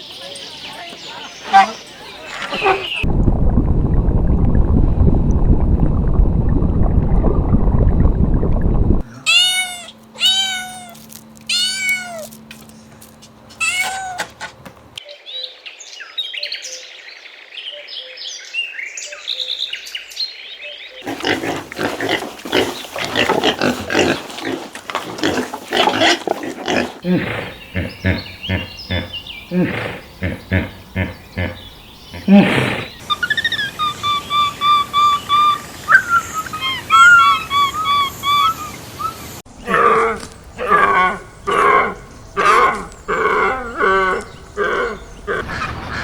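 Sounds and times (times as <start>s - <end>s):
loud low rumbling: 3.0s - 9.1s
cat meowing: 9.3s - 12.3s, 13.6s - 14.3s.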